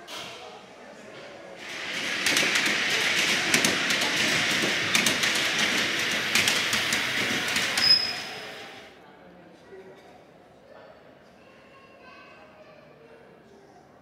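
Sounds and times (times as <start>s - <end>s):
wheels clicking over rail joints: 1.6s - 8.9s
high wheel squeal: 6.4s - 8.8s.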